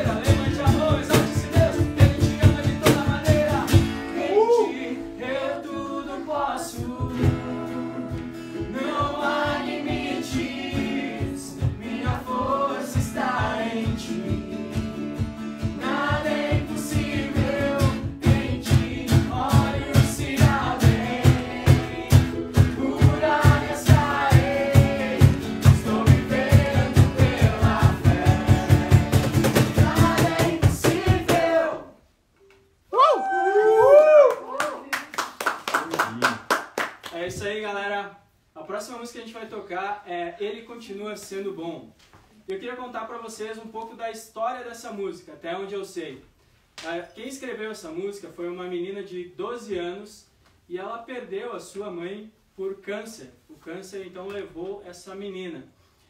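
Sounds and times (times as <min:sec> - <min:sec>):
people singing: 0:00.0 - 0:15.0, 0:15.6 - 0:32.0
acoustic guitar: 0:00.0 - 0:32.9
steady beat: 0:15.2 - 0:31.6.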